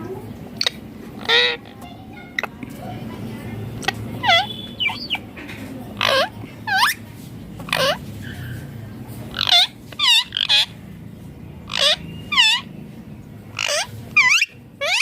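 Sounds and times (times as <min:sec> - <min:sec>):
parakeet shrill screeches: 0:00.6 - 0:01.7, 0:04.2 - 0:05.2, 0:07.7 - 0:08.0, 0:09.3 - 0:10.7, 0:11.7 - 0:12.7, 0:13.6 - 0:15.0.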